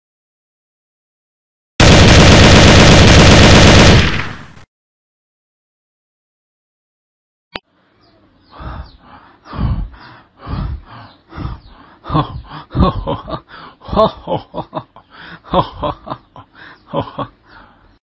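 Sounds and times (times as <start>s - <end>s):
man laughing: 9.6s - 17.7s.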